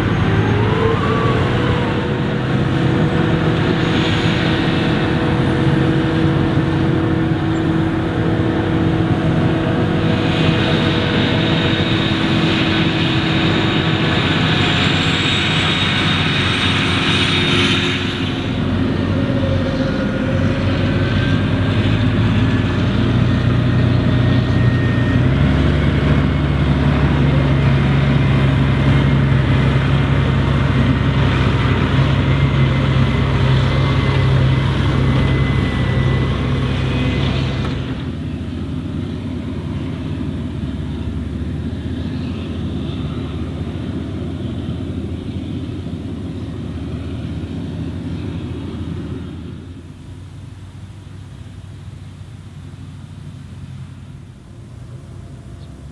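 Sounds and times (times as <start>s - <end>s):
rushing hiss: 0.0s - 7.8s, 9.4s - 19.1s
harvester diesel engine: 0.0s - 55.9s.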